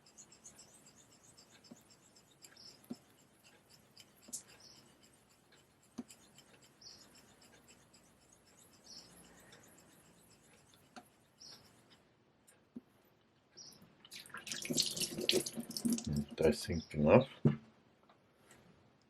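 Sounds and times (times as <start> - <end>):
razor blade swishing on whetstone: 0.0 - 11.9
razor clicking on stone: 0.0 - 12.0.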